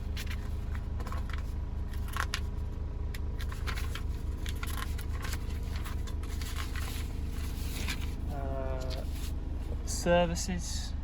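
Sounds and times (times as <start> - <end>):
paper rustling: 0.0 - 2.5, 3.4 - 9.4
low pulsing hum: 0.0 - 11.0.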